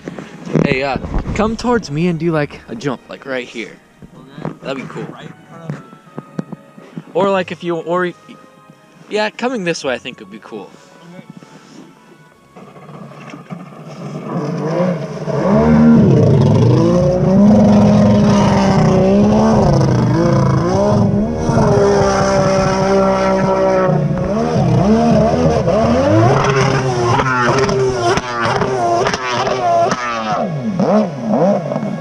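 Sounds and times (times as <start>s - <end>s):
jet ski engine revving: 12.6s - 32.0s.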